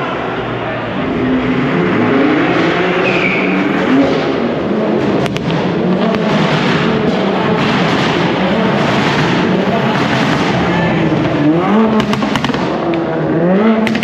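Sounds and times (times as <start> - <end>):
car engines revving: 0.0 - 14.0
dense noisy background: 0.0 - 14.0
sharp cracks: 5.0 - 13.1.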